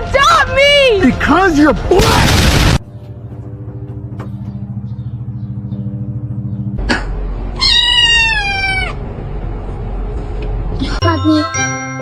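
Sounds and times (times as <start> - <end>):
cat meowing: 7.6 - 9.0.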